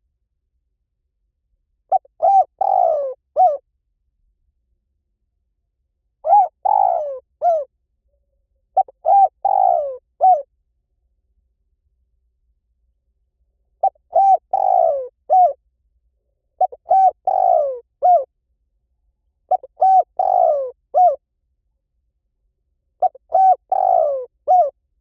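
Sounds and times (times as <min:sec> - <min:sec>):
dove cooing: 0:01.9 - 0:03.6, 0:06.2 - 0:07.7, 0:08.8 - 0:10.5, 0:13.8 - 0:15.6, 0:16.6 - 0:18.3, 0:19.5 - 0:21.2, 0:23.0 - 0:24.7.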